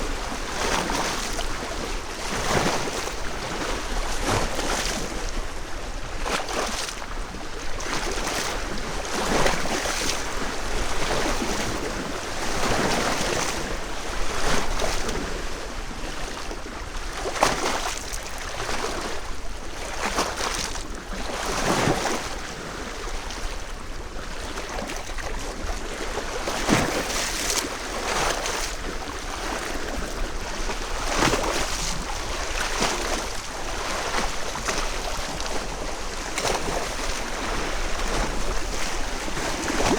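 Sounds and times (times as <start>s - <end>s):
waves lapping against stones: 26.1s - 39.9s.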